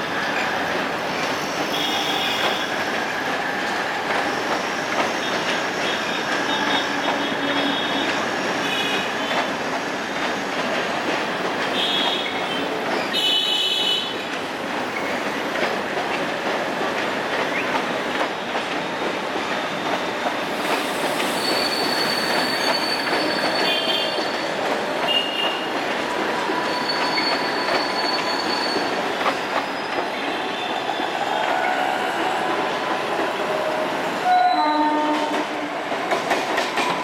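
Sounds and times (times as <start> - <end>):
train wheels rumbling on rails: 0.0 - 37.0
high-pitched wheel squeals: 21.2 - 24.2, 26.6 - 29.9.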